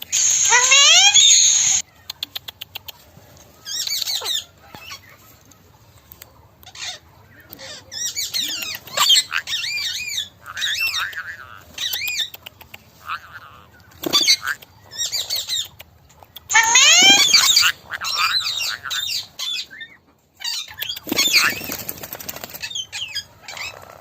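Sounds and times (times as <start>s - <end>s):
parakeets chattering: 0.0s - 1.8s, 7.6s - 24.0s
parakeets screeching: 0.0s - 1.8s, 7.6s - 12.3s, 13.1s - 15.7s, 16.5s - 24.0s.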